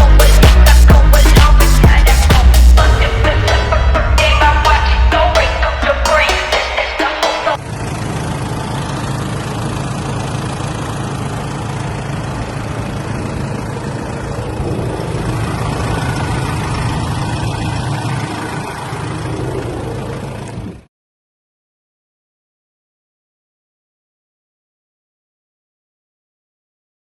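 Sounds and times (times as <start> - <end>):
diesel engine idling: 0.0 - 20.9.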